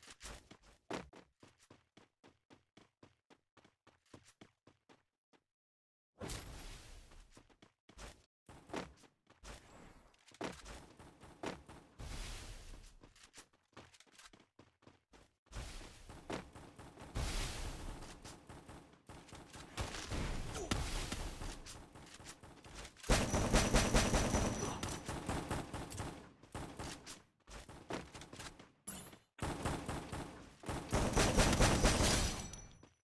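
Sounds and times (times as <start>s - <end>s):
rapid gunfire bursts: 16.4s - 19.9s, 21.3s - 27.0s, 29.4s - 32.4s.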